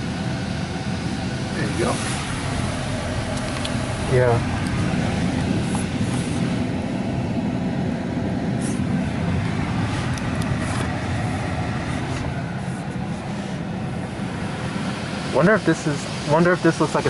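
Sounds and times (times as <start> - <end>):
car wash rumble: 0.0 - 17.0.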